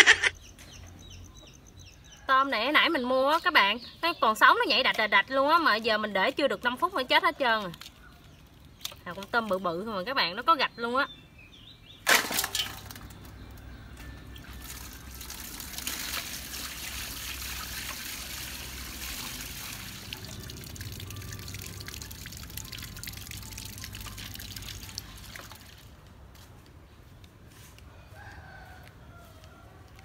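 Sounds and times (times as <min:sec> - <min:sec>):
tap water running into metal basin: 0:14.4 - 0:25.7
splashing of hands rinsing prawns: 0:14.4 - 0:26.0.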